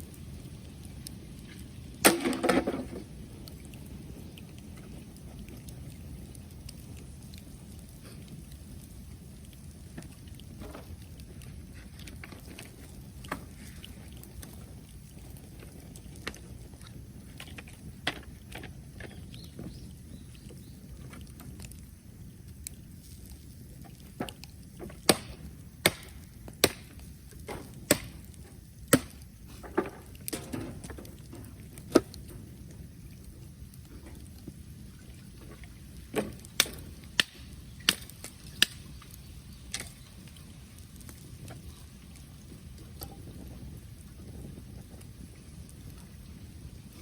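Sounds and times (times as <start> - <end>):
fire crackling and popping: 0.0 - 47.0
low rumble of bonfire: 0.0 - 47.0
wood being chopped: 2.0 - 2.9, 25.0 - 28.2, 28.9 - 30.5.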